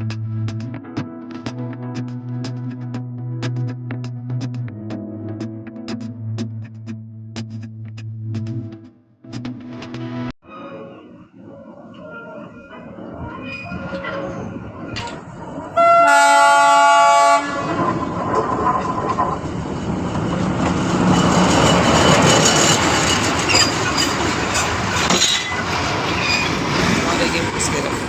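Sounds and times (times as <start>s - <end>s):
train rumbling past: 12.0s - 28.0s
wheels clattering on rails: 12.6s - 16.0s, 16.6s - 28.0s
train horn: 15.8s - 17.8s.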